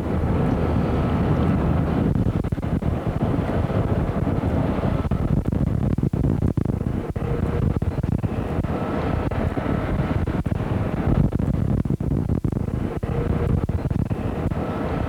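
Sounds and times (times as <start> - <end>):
helicopter engine and rotor noise: 0.0 - 12.0, 12.6 - 15.0.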